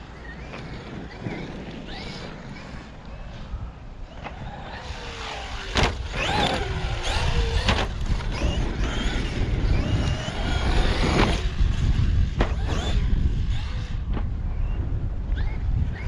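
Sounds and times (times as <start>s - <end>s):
wind rumble on microphone: 0.0s - 16.0s
electric motor whining: 4.1s - 14.7s.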